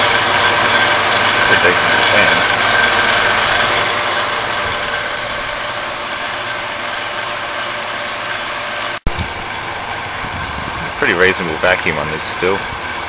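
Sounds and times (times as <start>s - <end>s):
condensing unit fans and compressor: 0.0s - 13.0s.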